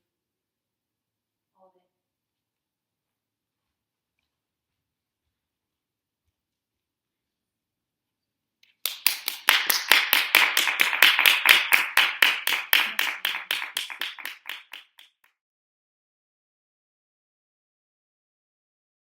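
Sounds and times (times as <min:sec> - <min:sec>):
hands clapping: 0:08.6 - 0:15.3.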